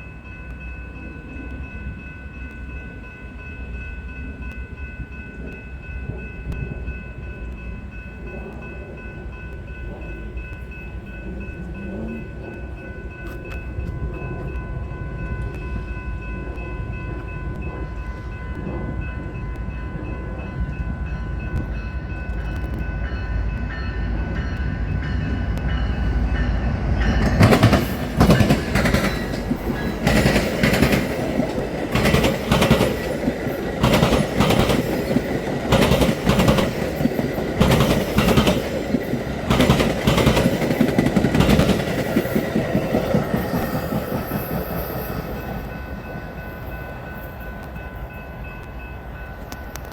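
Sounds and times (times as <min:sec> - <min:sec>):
train rumble: 0:00.0 - 0:49.9
train wheels clattering over rail joints: 0:27.1 - 0:45.3.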